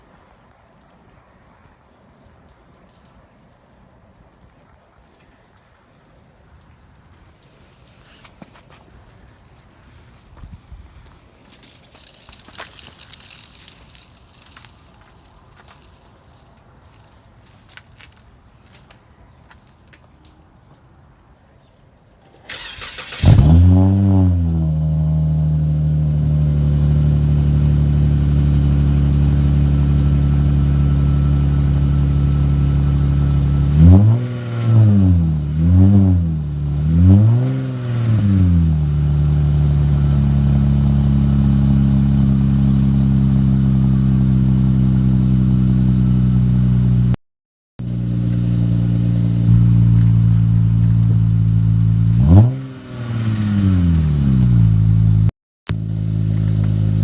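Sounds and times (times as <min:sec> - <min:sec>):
car engine idling: 0:10.8 - 0:18.2, 0:22.5 - 0:47.2, 0:47.8 - 0:57.0
car engine cold start: 0:22.4 - 0:47.1, 0:47.8 - 0:57.0
car engine revving: 0:22.5 - 0:47.2, 0:47.8 - 0:57.0.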